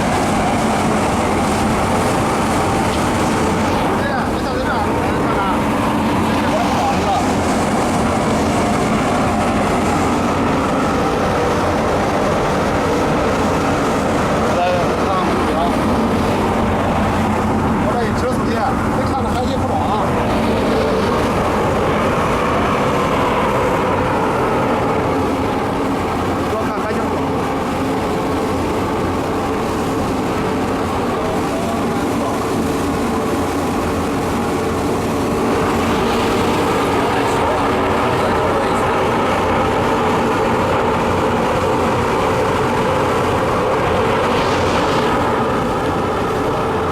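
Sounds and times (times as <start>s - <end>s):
burner fan and flame roar: 0.0s - 46.9s
low hum: 0.0s - 46.9s.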